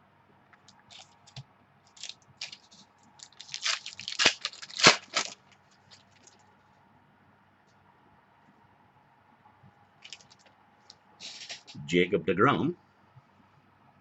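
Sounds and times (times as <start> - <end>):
plastic packaging crinkling: 0.7 - 6.5, 10.0 - 10.5, 11.2 - 11.8.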